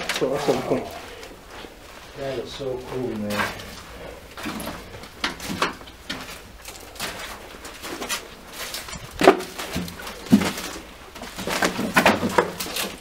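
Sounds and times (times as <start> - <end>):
footsteps through water and mud: 0.0 - 13.0.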